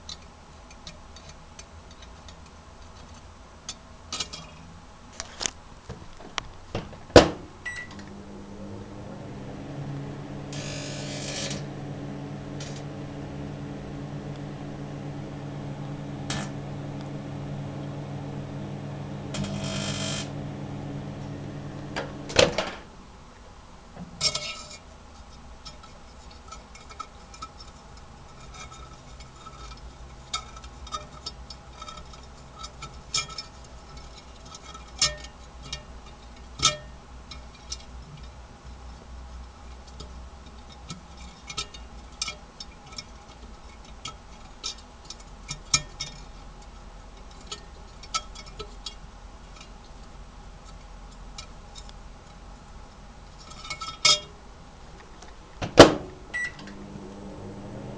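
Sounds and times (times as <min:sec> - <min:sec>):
microwave oven humming: 0:06.2 - 0:23.3, 0:53.8 - 0:57.9.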